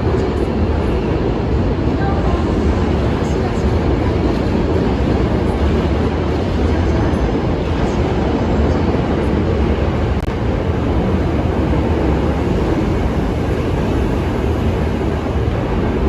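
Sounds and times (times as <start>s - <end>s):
electric train running past: 0.0s - 16.0s.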